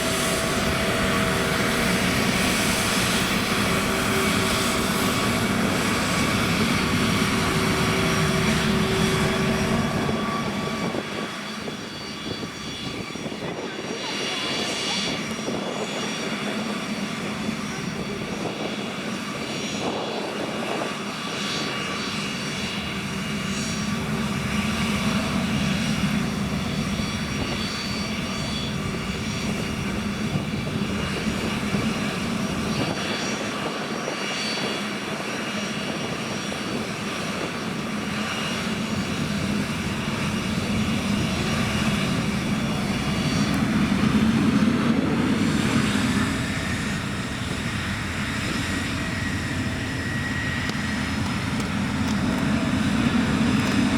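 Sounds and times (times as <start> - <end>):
jet engines whining: 0.0 - 53.9.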